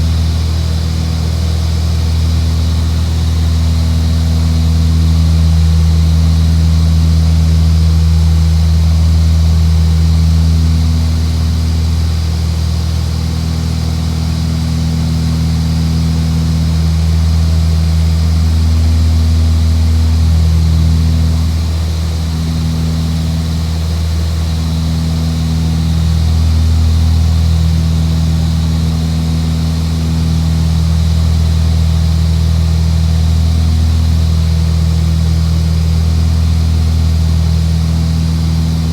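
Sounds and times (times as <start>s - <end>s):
propeller aircraft engine droning: 0.0s - 38.9s.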